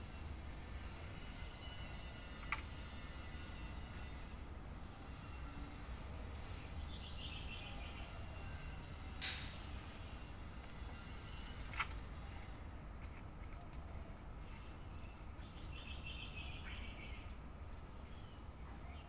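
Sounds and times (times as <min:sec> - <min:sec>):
birds chirping: 0:15.0 - 0:17.4.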